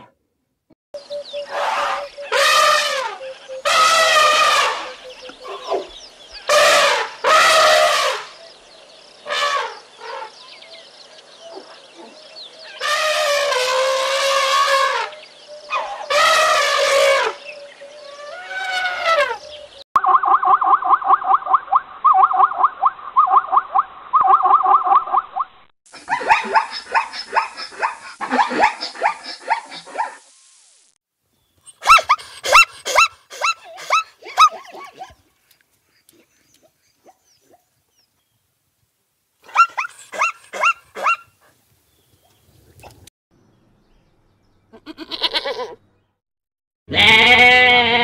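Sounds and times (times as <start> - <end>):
zebra barking yelps: 1.3 - 8.2, 20.0 - 30.2, 31.7 - 35.2, 39.4 - 41.4
zebra yelping barks: 26.0 - 30.2, 31.8 - 35.2, 39.4 - 41.4.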